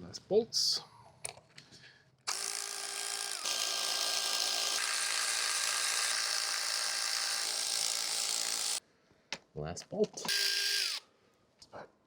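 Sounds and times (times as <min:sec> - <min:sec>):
power tool loosening bolt: 0:10.2 - 0:11.0.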